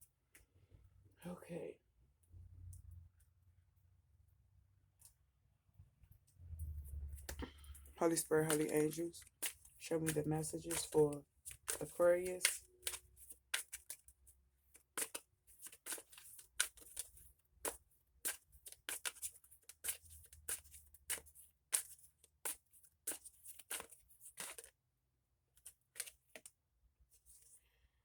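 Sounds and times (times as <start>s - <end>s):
cards being shuffled: 6.8s - 14.0s, 14.8s - 24.7s, 25.6s - 26.5s.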